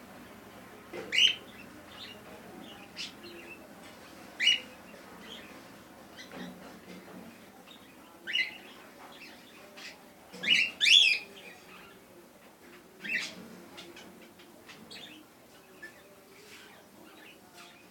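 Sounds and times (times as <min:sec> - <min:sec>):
cockatiels chirping: 0:01.0 - 0:02.2, 0:04.4 - 0:05.5.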